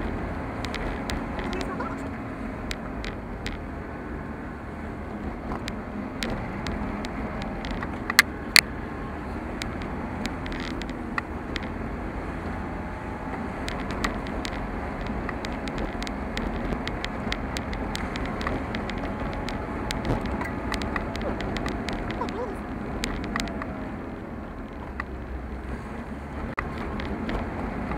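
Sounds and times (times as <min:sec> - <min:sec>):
car engine and road noise: 0:00.0 - 0:27.9
small ticks: 0:09.6 - 0:11.8, 0:13.6 - 0:23.7.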